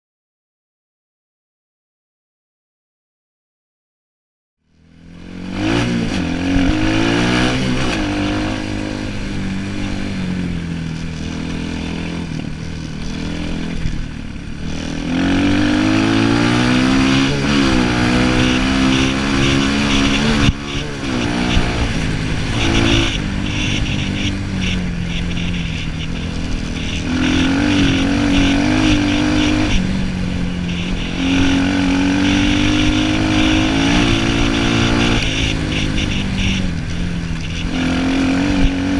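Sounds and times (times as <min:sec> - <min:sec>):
dirt bike engine revving: 0:05.0 - 0:38.9.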